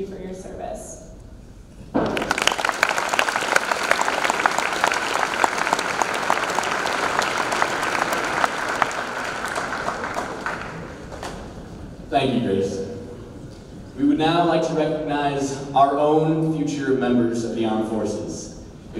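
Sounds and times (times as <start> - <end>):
audience applauding: 2.0 - 11.9.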